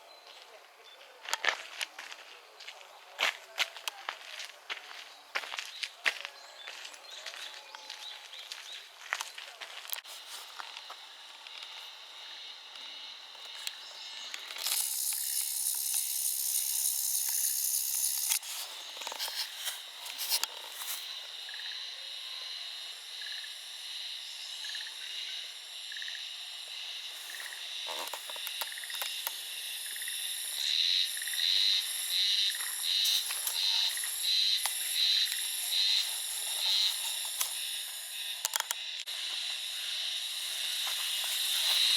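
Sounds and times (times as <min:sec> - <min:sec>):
dense insect buzz: 0:10.1 - 0:41.9.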